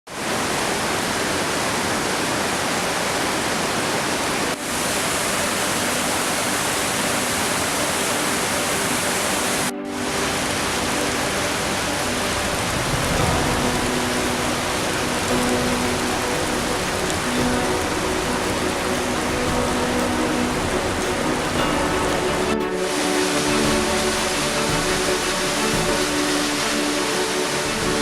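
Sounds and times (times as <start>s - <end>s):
waterfall rushing: 0.1s - 28.0s.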